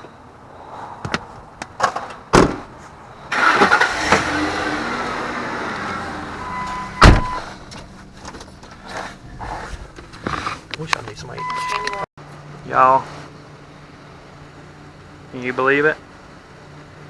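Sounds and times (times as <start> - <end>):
car door slamming: 2.3 - 2.7, 6.5 - 7.6.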